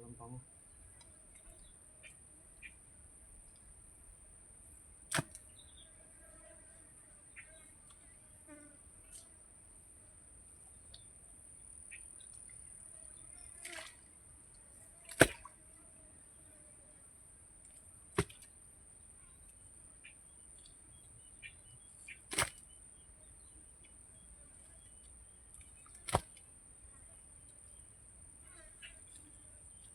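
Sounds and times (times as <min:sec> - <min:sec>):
insects droning: 0:00.0 - 0:29.9.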